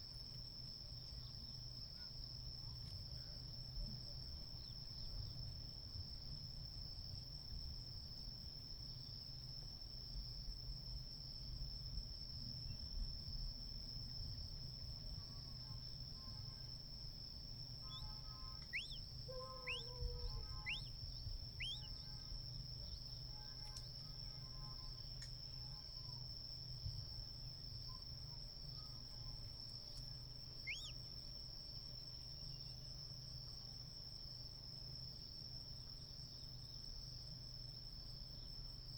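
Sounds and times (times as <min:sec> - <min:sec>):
high-pitched insect trill: 0:17.5 - 0:26.7, 0:27.3 - 0:33.6
birds whistling falling calls: 0:17.9 - 0:19.0, 0:19.6 - 0:20.9, 0:21.6 - 0:22.0, 0:30.7 - 0:31.0.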